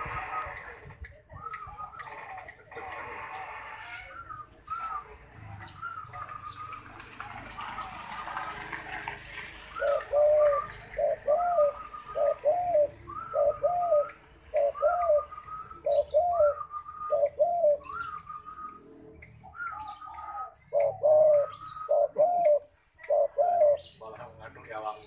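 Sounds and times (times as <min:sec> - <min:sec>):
dove cooing: 0:09.7 - 0:24.0.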